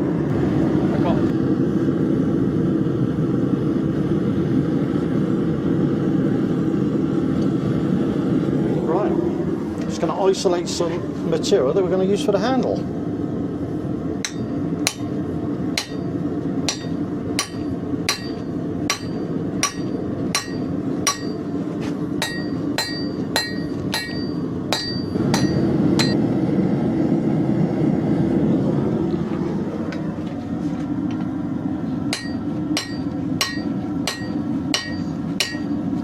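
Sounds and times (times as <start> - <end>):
hammer striking steel on anvil: 14.2 - 15.1, 15.8 - 21.6, 22.2 - 26.2, 32.1 - 35.9.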